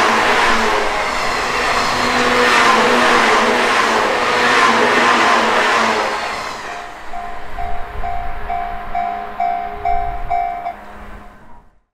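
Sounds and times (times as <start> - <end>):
electric train running: 0.0 - 11.6
level-crossing bell ringing: 6.7 - 11.3.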